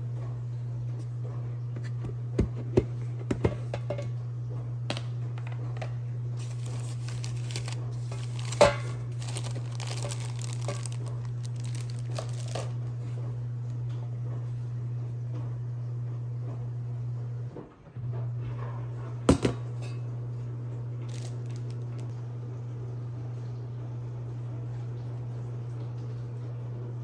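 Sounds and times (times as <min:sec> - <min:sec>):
packaging crinkling and tearing: 0:06.4 - 0:12.9, 0:21.1 - 0:22.1.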